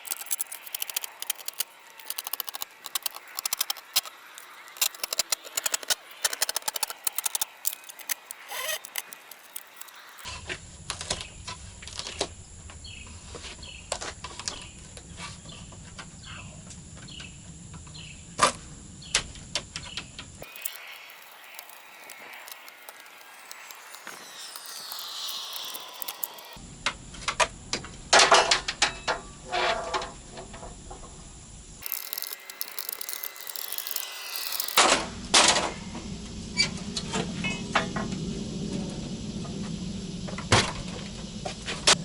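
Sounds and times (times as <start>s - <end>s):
knocks and rattles from tools: 0.0s - 10.3s
siding being pried off: 0.0s - 10.3s.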